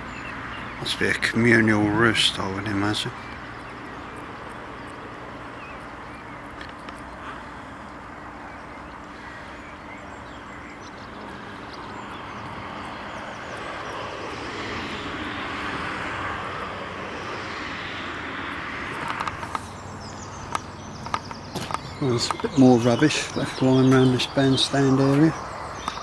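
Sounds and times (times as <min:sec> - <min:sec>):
aircraft passing overhead: 0:00.0 - 0:26.0
sharp clicks: 0:18.9 - 0:19.7, 0:20.4 - 0:22.6, 0:25.8 - 0:26.0.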